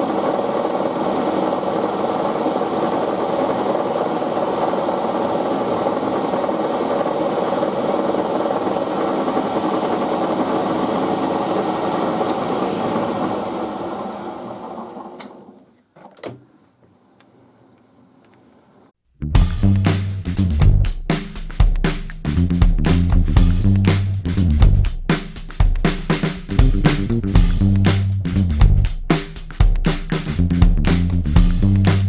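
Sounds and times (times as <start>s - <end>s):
milling machine running: 0.0s - 15.2s.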